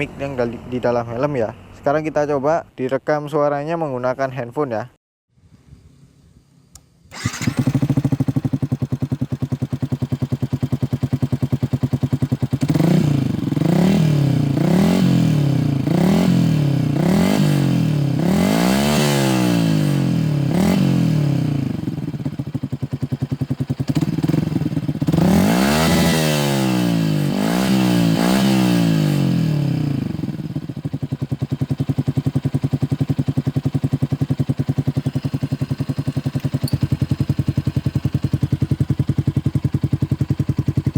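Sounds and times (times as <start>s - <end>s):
motorcycle engine idling: 7.1s - 18.3s, 19.8s - 26.0s, 29.1s - 40.9s
motorcycle engine revving: 7.1s - 40.9s.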